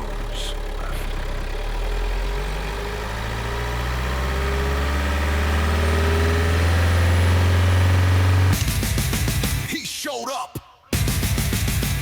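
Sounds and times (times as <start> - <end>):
heavy engine idling: 0.0 - 7.1.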